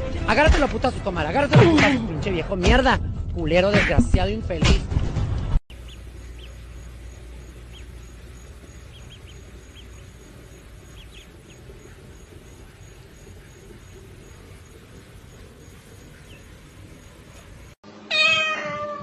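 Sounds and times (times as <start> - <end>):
steady background noise: 5.7 - 18.0.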